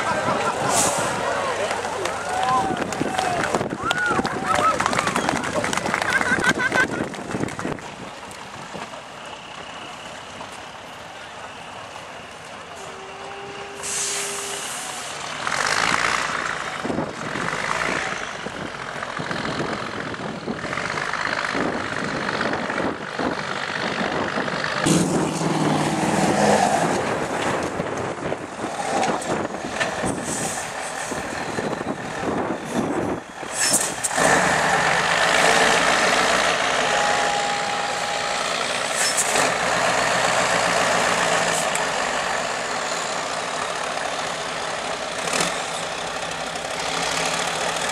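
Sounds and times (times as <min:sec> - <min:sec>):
truck diesel engine running hard: 0:00.0 - 0:47.9
short sharp hisses: 0:13.8 - 0:15.1.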